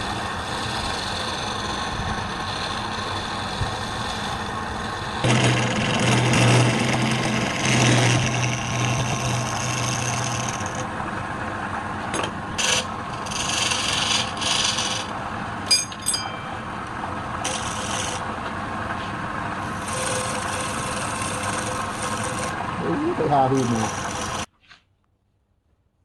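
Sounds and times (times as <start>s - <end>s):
rasp scraping on wood: 0.0s - 10.9s, 12.2s - 15.2s, 17.4s - 18.3s, 19.0s - 24.5s
motor humming: 0.0s - 24.5s
sharp metallic clink: 15.7s - 16.7s.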